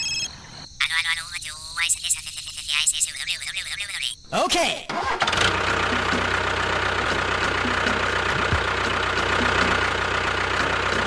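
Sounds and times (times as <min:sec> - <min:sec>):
small motor running with ticking: 0:05.4 - 0:11.0.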